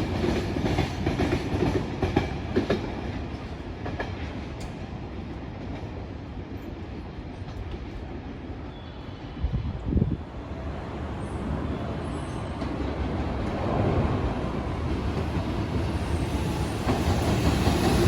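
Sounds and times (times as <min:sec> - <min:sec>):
train rumbling past: 0:00.0 - 0:18.0
wind buffeting microphone: 0:09.2 - 0:11.0.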